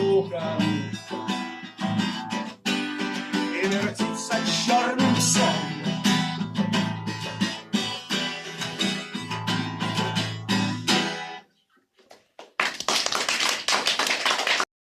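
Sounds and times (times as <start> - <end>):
strummed guitar chords: 0.0 - 11.4
audience applause: 12.4 - 14.7.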